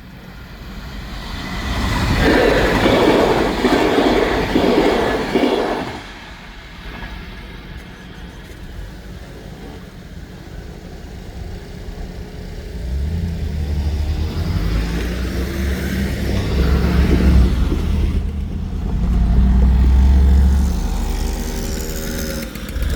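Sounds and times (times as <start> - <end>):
vehicle engine rumbling past: 11.6 - 22.9.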